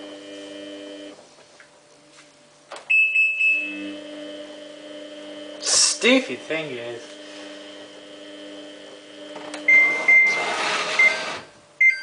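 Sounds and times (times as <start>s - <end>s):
washing machine short high beeps: 2.9s - 3.7s, 9.7s - 10.4s, 11.8s - 12.0s
steady machine hum: 3.6s - 11.8s.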